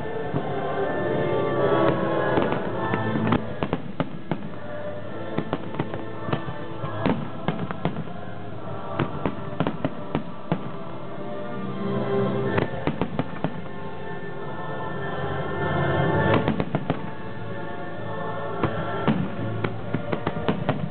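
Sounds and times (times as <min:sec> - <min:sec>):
fireworks bangs and crackles: 0:00.0 - 0:11.2, 0:12.4 - 0:14.2, 0:16.1 - 0:17.7, 0:18.4 - 0:20.9
music over loudspeakers: 0:00.0 - 0:20.9.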